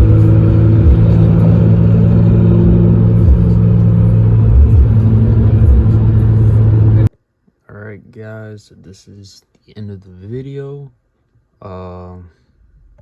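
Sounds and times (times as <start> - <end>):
car engine droning: 0.0 - 7.1.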